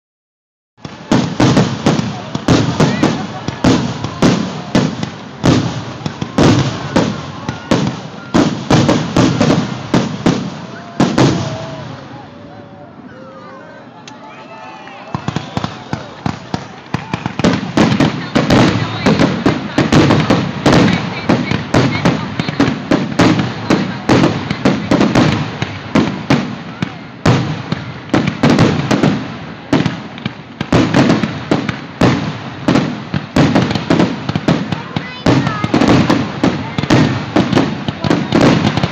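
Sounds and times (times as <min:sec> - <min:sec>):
fireworks bangs with rumbling echo: 0:00.8 - 0:12.2, 0:15.1 - 0:38.9.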